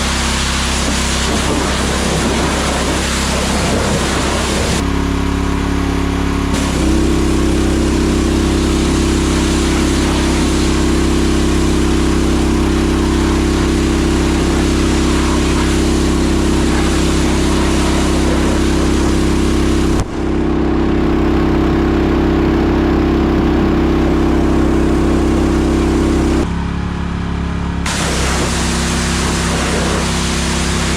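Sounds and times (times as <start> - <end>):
steam pressure washer hissing: 0.0 - 4.8, 6.5 - 20.2, 27.9 - 30.9.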